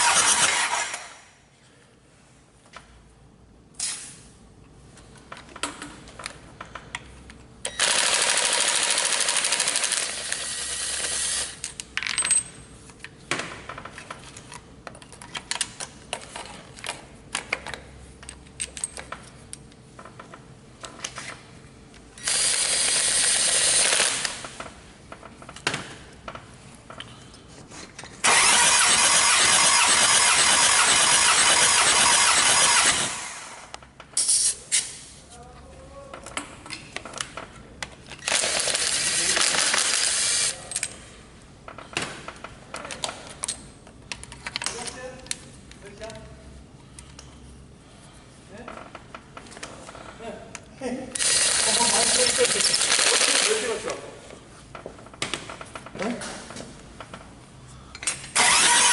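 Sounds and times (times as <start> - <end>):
diesel engine cranking on starter: 28.2 - 33.4, 58.3 - 58.9.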